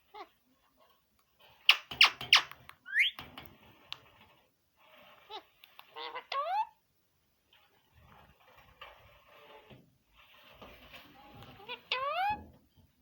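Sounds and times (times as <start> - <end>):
parrot screeching and calling: 1.7 - 3.2.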